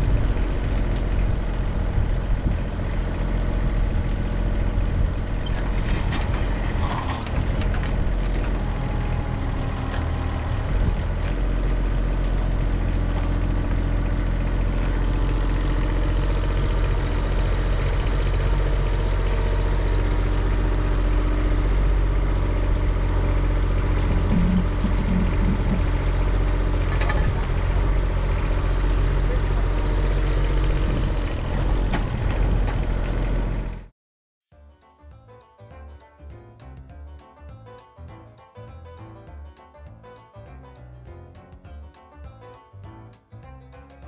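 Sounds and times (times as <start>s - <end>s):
excavator engine running: 0.0s - 33.9s
machine knocks and scrapes: 5.5s - 8.6s, 24.0s - 27.5s.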